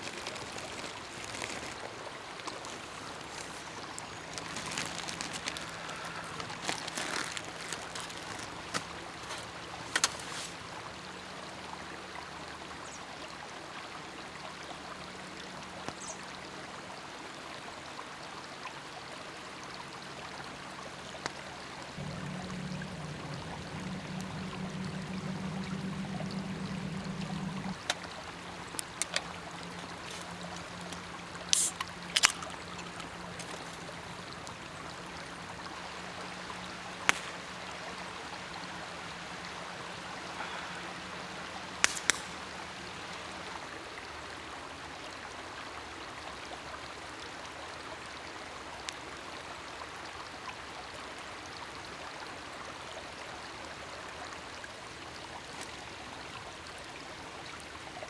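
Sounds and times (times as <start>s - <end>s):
fire pops: 0.0s - 10.6s, 22.0s - 34.8s, 37.0s - 37.7s, 41.8s - 42.7s
campfire crackling: 0.0s - 11.0s, 22.0s - 43.8s
low hum: 22.0s - 31.5s
steady hiss: 22.0s - 43.7s.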